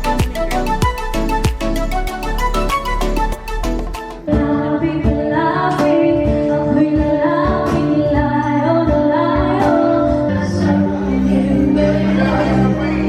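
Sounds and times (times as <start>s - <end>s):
pop music with woman singing: 0.0s - 13.0s.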